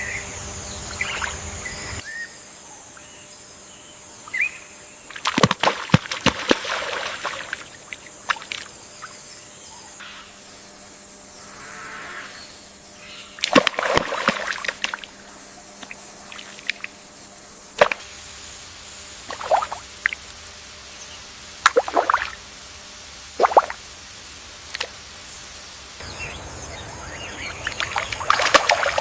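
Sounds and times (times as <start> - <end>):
water splashing and sloshing: 5.1 - 8.8, 13.4 - 17.2, 17.8 - 18.2, 19.2 - 20.6, 21.6 - 22.5, 23.2 - 23.9, 24.5 - 25.0, 27.4 - 29.0.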